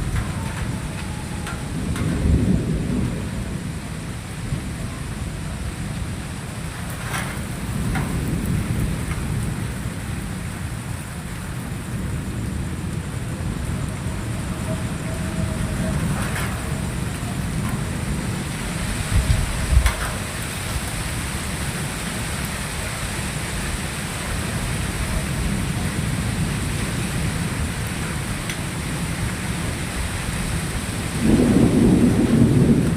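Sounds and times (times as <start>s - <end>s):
sharp drip-like ticks: 0.0s - 2.4s, 6.9s - 9.8s, 17.4s - 18.3s, 19.1s - 21.0s, 27.8s - 28.7s
steady rain: 0.0s - 32.9s
thunder rumbling: 0.0s - 32.9s.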